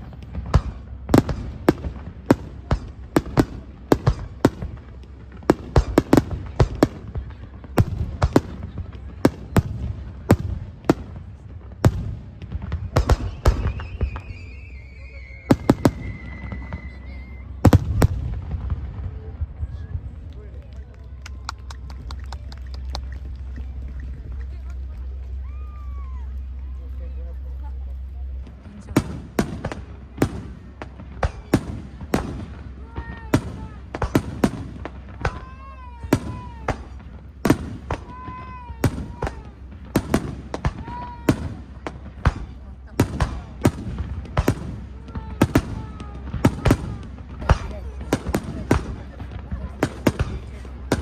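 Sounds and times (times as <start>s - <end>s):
fireworks bangs: 0.0s - 20.5s, 28.2s - 51.0s
low rumble: 0.0s - 51.0s
rising and falling whistling tones: 13.6s - 17.5s.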